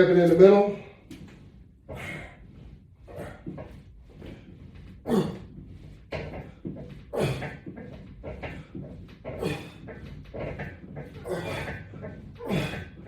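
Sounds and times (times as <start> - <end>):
man breathing hard: 1.8 - 10.2, 11.2 - 13.0
man grunting: 5.1 - 5.4.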